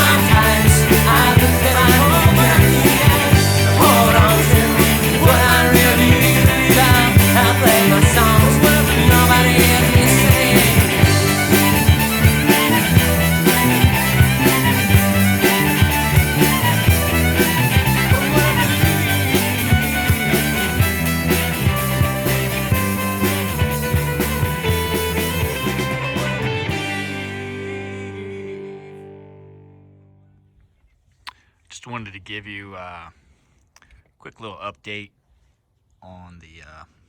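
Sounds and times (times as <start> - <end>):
instrumental rock music: 0.0 - 30.4.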